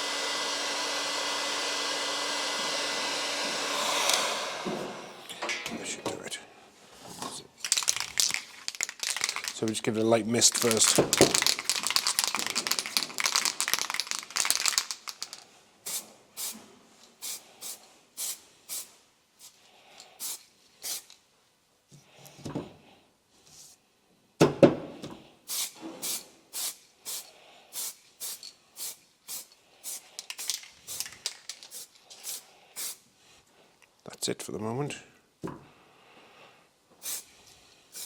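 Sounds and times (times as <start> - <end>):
aerosol can spraying: 10.4 - 16.5, 27.8 - 33.0.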